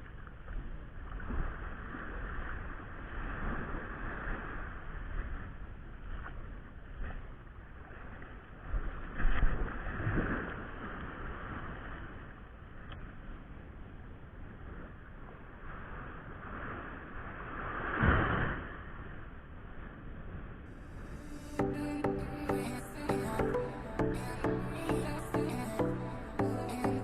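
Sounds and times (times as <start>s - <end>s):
wind on microphone: 0.0s - 13.4s
waves washing on beach: 0.0s - 13.6s.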